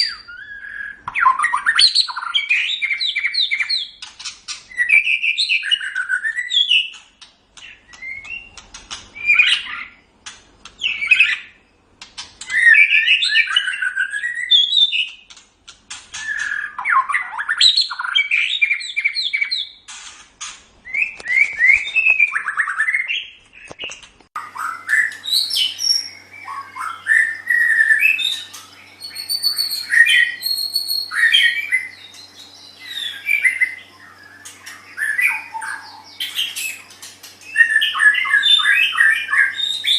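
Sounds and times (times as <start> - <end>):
bird singing whistles: 0.0 - 4.0, 4.7 - 7.0, 7.7 - 8.6, 12.4 - 15.2, 16.2 - 19.8, 20.9 - 23.3, 24.4 - 36.8, 37.4 - 39.9
faint steady hum: 0.0 - 14.5, 23.3 - 39.9.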